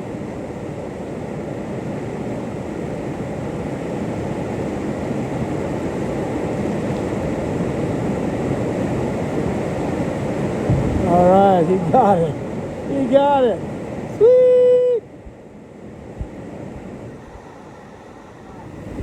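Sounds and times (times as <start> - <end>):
whitewater rapid roaring: 0.0 - 19.0.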